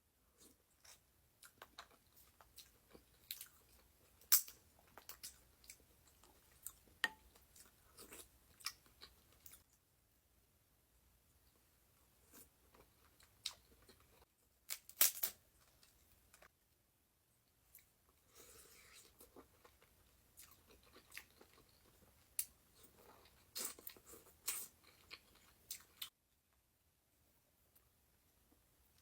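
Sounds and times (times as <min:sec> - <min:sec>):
chewing with clicks and crunches: 0:00.4 - 0:09.8, 0:12.2 - 0:16.5, 0:17.7 - 0:26.2.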